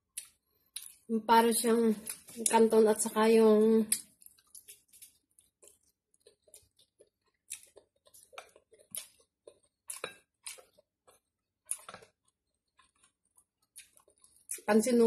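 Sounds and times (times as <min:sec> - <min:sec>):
person slurping and chewing noodles: 0:04.0 - 0:14.7.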